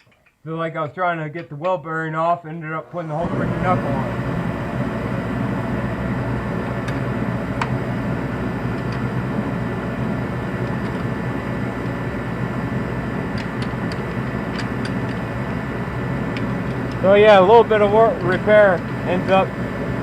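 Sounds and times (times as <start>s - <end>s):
low mechanical hum: 2.8s - 20.0s.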